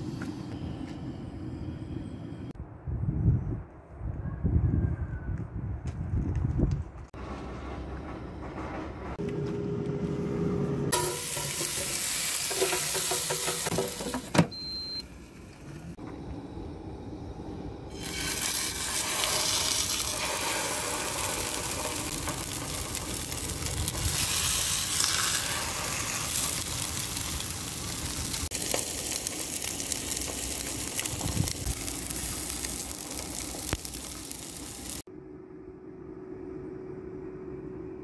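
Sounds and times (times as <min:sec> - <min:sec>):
fish sizzling in hot oil: 0:17.9 - 0:35.0.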